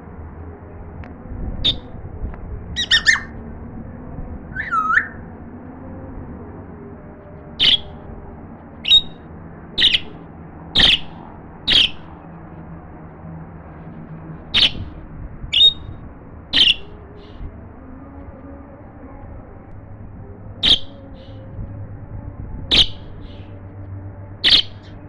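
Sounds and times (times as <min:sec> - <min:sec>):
parrot sharp calls: 0:02.8 - 0:03.3, 0:04.6 - 0:05.2, 0:07.6 - 0:07.9, 0:08.8 - 0:09.2, 0:09.8 - 0:10.2, 0:10.8 - 0:11.1, 0:11.7 - 0:12.1, 0:14.6 - 0:14.8, 0:15.5 - 0:15.9, 0:16.6 - 0:17.3, 0:24.4 - 0:24.9.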